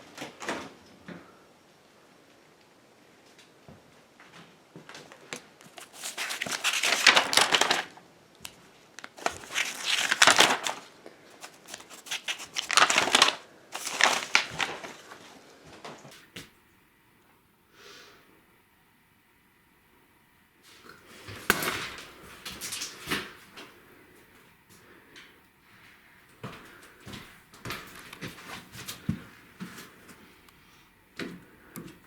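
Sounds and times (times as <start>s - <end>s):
crunching crackling noise: 5.0s - 15.2s.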